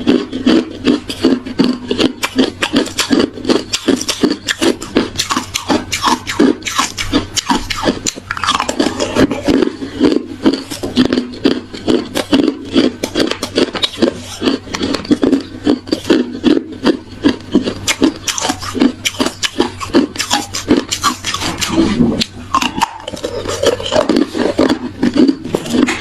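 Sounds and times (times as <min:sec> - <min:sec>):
ice crunching between teeth: 0:00.0 - 0:26.0.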